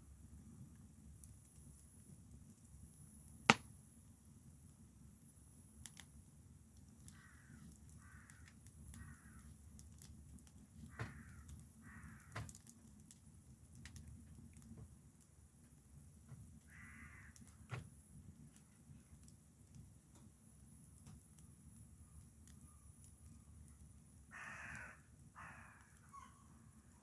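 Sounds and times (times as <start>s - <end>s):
sharp snap: 3.5s - 3.7s
faint clicks: 6.7s - 15.3s
crow cawing: 7.1s - 9.5s, 10.9s - 12.5s, 16.7s - 17.5s, 24.3s - 26.6s.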